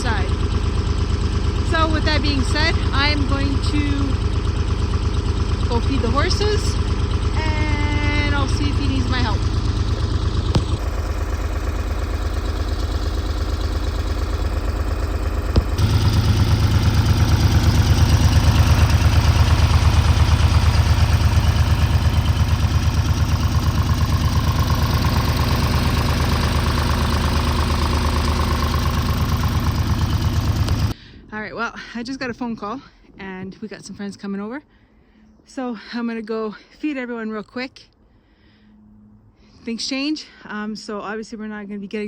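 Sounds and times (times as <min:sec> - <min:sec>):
tractor engine idling: 0:00.0 - 0:31.2.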